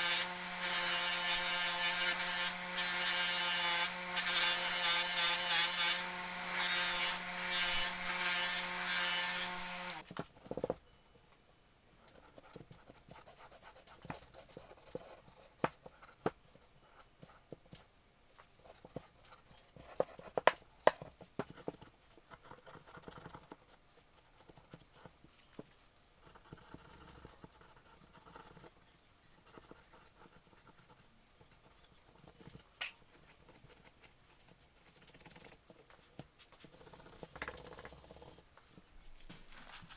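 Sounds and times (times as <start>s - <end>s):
abrasive wheel scratching metal: 0.0s - 10.0s
bench buffer motor hum: 0.0s - 10.0s.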